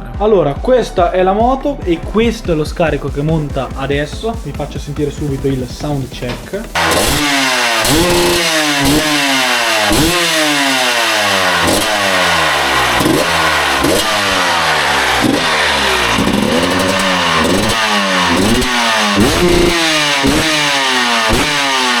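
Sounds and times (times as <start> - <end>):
dirt bike engine revving: 1.8 - 22.0.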